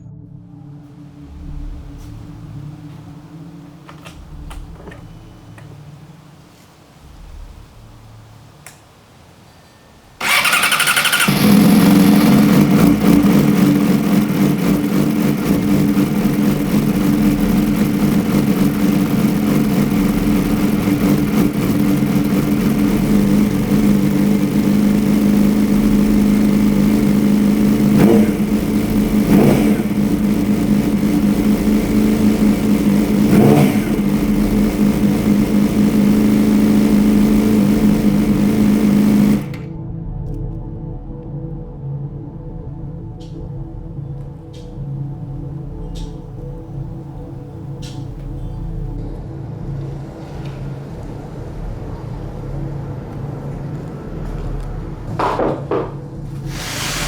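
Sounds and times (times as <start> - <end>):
motorcycle engine idling loudly: 10.2 - 39.6.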